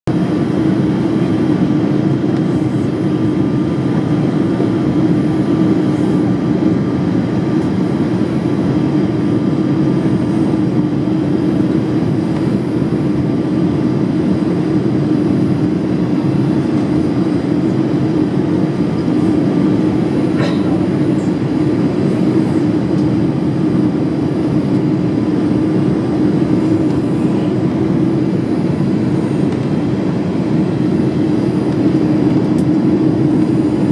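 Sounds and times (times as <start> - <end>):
aircraft engine and airflow noise: 0.1 - 33.9.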